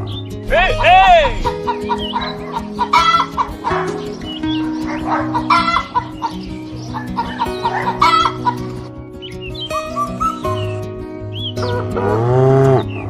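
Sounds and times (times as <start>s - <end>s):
background music with held notes: 0.0s - 13.0s
loud chicken calls: 1.4s - 3.8s, 5.3s - 6.4s, 7.0s - 8.6s
chickens clucking: 1.4s - 8.9s.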